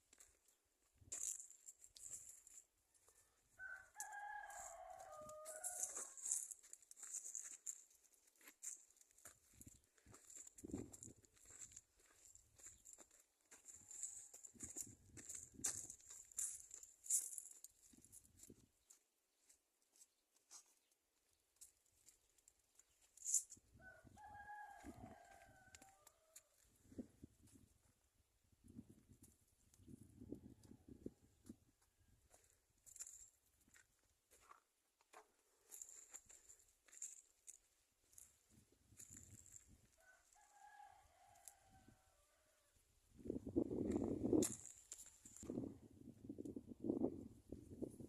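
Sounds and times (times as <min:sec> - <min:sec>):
faint rooster crowing: 0:03.0 - 0:06.5, 0:23.7 - 0:26.7, 0:39.0 - 0:42.9.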